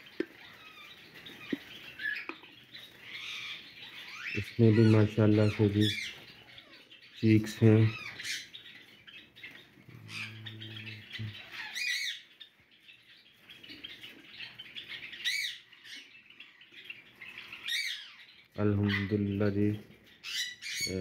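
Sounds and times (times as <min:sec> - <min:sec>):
rising and falling bird calls: 0:00.0 - 0:21.0
sparrows chirping: 0:00.0 - 0:21.0
low hum: 0:09.9 - 0:11.4.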